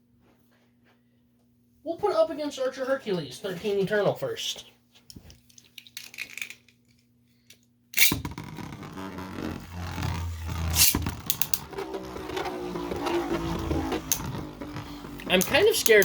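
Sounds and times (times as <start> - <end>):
spinning tops colliding knocks: 8.0 - 16.0
spinning tops in plastic stadium: 8.0 - 16.0.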